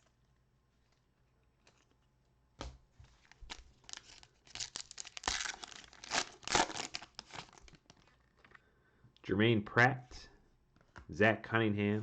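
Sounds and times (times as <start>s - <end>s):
wrapper tearing and crinkling: 3.2s - 8.4s.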